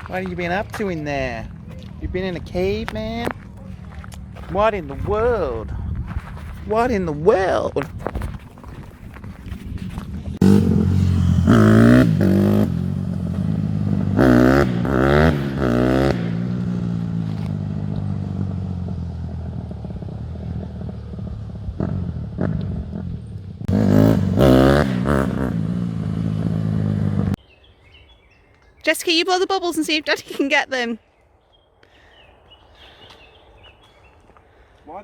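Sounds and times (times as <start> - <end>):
motorbike engines revving: 9.0 - 27.4.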